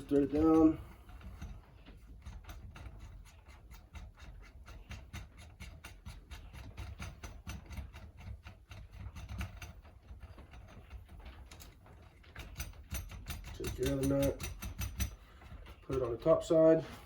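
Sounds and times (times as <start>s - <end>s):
nut clicking on metal stud: 11.5s - 15.2s.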